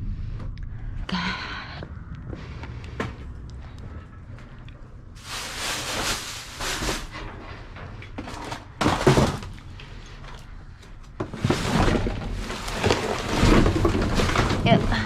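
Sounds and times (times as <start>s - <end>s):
items knocking and clattering: 5.2s - 10.4s, 11.1s - 15.0s
bags and packages rustling: 5.2s - 15.0s.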